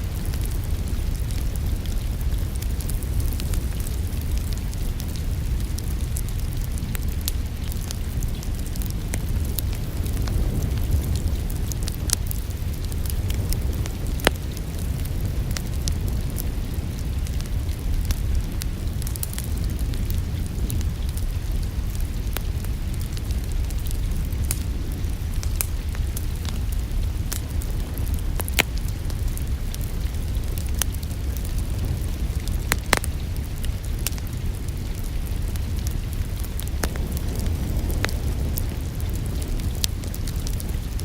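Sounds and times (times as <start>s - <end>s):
sharp fire pops: 0.0s - 41.0s
wood fire crackling: 0.0s - 41.0s.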